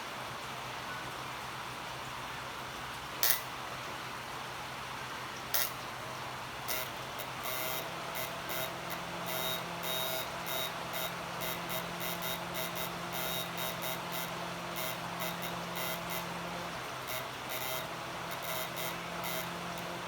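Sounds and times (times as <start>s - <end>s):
low electrical hum: 0.0s - 20.0s
short electronic beeps: 6.7s - 16.3s.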